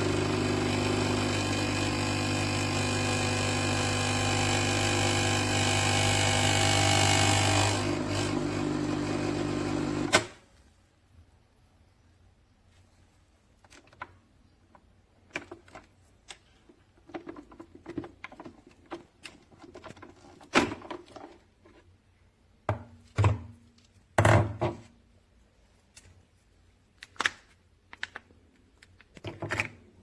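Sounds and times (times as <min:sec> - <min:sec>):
hard objects clicking and knocking: 0:13.6 - 0:21.8, 0:27.0 - 0:30.0.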